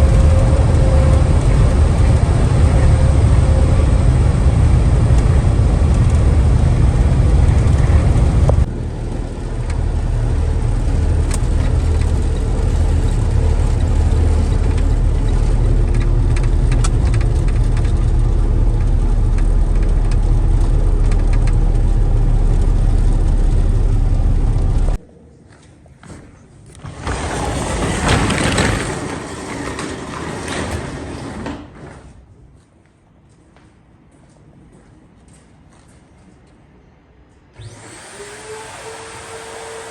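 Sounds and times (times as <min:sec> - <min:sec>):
truck engine rumbling: 0:00.0 - 0:25.4
road noise: 0:00.0 - 0:39.9
scraping rustling noise: 0:24.6 - 0:33.6.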